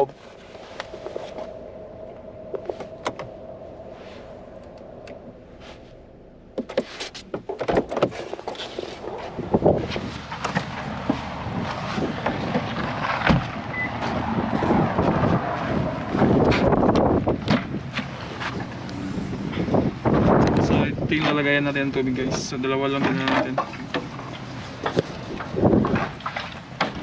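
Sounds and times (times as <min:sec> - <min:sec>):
steady hum inside car: 0:00.0 - 0:12.6
car door opening: 0:00.0 - 0:14.2
wind blowing on microphone: 0:09.0 - 0:22.7, 0:24.8 - 0:26.2.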